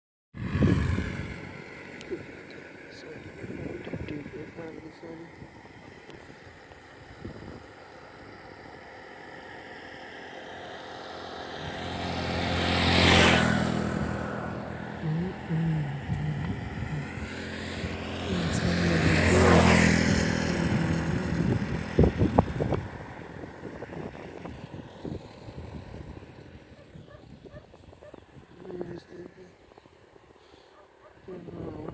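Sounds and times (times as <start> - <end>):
vehicles driving past: 0.4 - 31.9.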